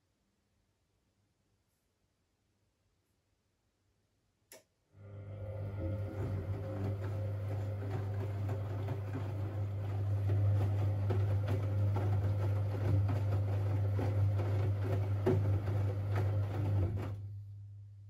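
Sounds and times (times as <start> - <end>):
washing machine hum: 5.0 - 18.0.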